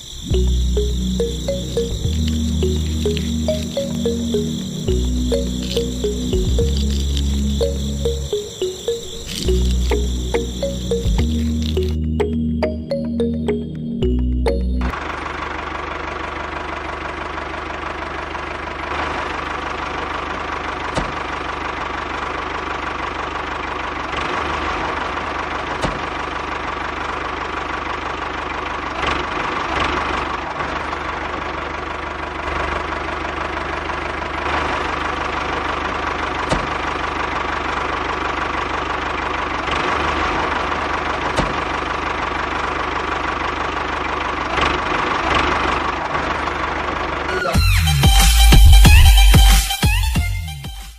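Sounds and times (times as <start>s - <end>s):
sharp clicks: 0.8s - 12.0s
small engine water pump running: 15.0s - 47.2s.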